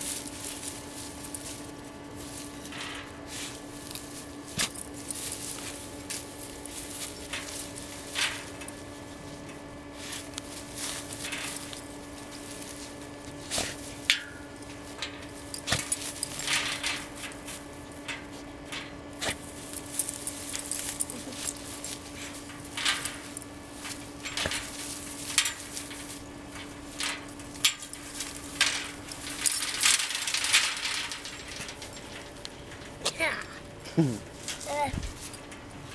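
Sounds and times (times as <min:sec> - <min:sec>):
rustling: 0:00.0 - 0:35.9
steady low hum: 0:00.0 - 0:35.9
jingling: 0:19.5 - 0:35.9.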